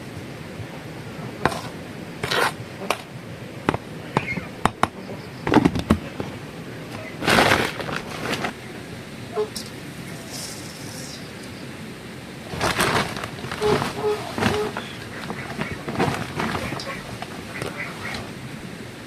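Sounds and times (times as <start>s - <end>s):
short rustling bursts: 6.0s - 8.7s, 12.4s - 18.8s.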